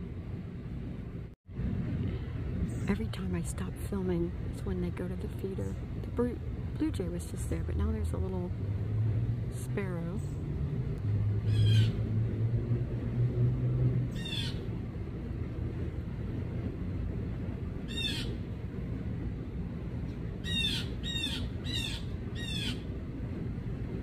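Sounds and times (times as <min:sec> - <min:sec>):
low rumble: 0:00.0 - 0:24.0
blue jay squawking calls: 0:11.5 - 0:12.0, 0:14.2 - 0:14.6, 0:17.9 - 0:18.4, 0:20.4 - 0:22.8.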